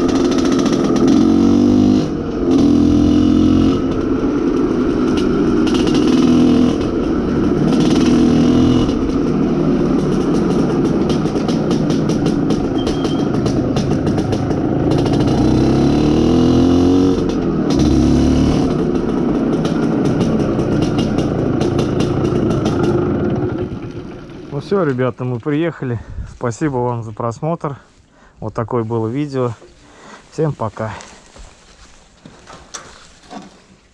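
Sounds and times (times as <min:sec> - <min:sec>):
two-stroke motorcycle engine revving: 0:00.0 - 0:24.6
wind buffeting microphone: 0:26.0 - 0:26.5.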